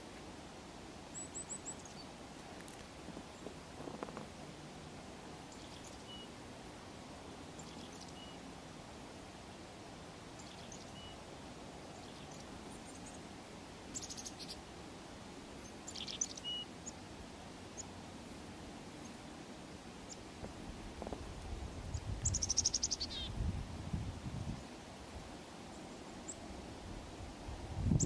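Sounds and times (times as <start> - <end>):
small birds chirping: 1.1 - 4.2, 5.4 - 6.4, 7.3 - 8.5, 10.3 - 14.7, 15.5 - 17.1, 17.7 - 18.0, 20.0 - 23.4.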